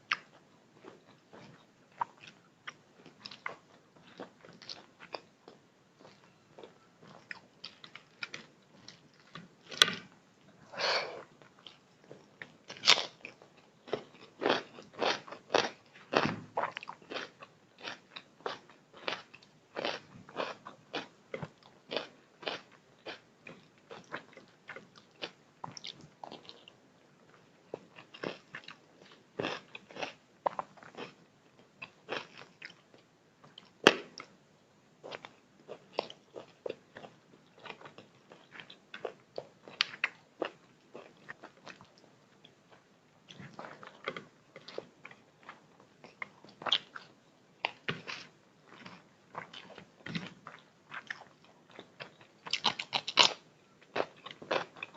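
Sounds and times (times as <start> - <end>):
person chewing and crunching food: 0.1 - 34.4, 35.0 - 54.9.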